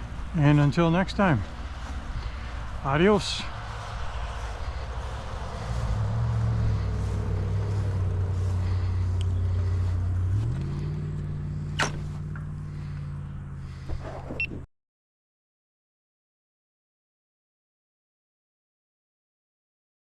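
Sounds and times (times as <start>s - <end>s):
car engine running: 0.0s - 14.5s
sharp click: 11.8s - 12.0s.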